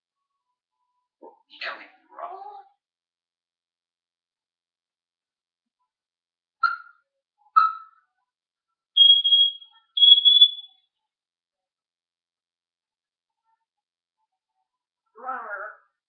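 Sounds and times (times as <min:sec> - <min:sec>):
parrot high-pitched whistles: 0:06.6 - 0:07.0, 0:07.6 - 0:08.0, 0:09.0 - 0:10.7.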